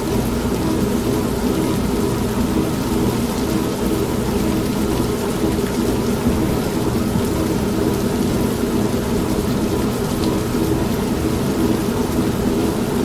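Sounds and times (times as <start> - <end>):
rain: 0.0 - 13.0
washing machine humming: 0.0 - 13.0
thunder: 6.2 - 7.6.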